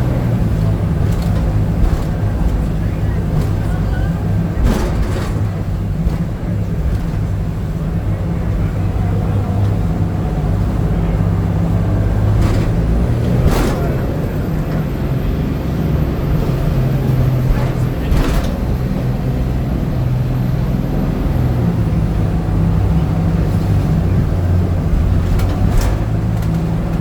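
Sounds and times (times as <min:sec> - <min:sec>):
boat engine running: 0:00.0 - 0:27.0
sudden thumps: 0:00.6 - 0:07.3.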